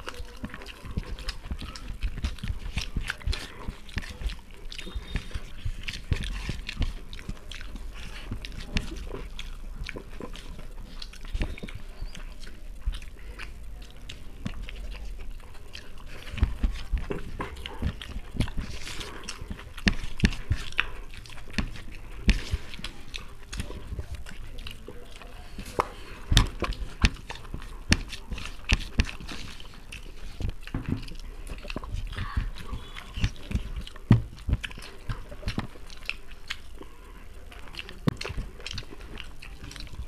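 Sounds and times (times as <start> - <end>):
people chewing and lip smacking: 0.0 - 40.0.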